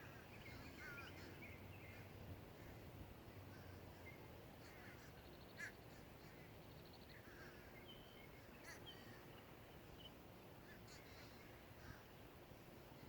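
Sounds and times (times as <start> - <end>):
distant crows cawing: 0.0 - 7.8, 8.4 - 9.3, 10.6 - 12.2.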